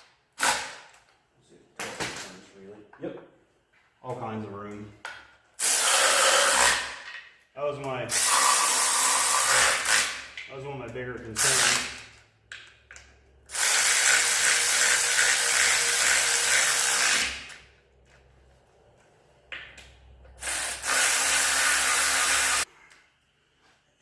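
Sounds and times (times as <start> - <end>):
hand-held power tool running: 5.6 - 7.1, 8.1 - 10.4, 11.4 - 12.1, 13.5 - 17.7, 20.4 - 22.7.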